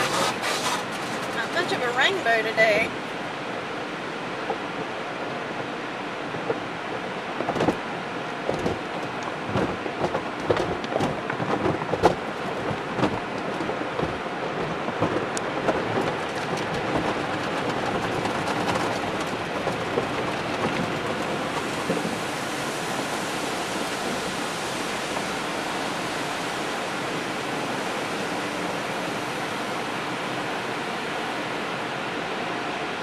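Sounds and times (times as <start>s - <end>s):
water spray drumming on car: 0.0s - 3.6s, 4.3s - 33.0s
knocks and thumps: 7.4s - 7.8s, 8.5s - 22.1s.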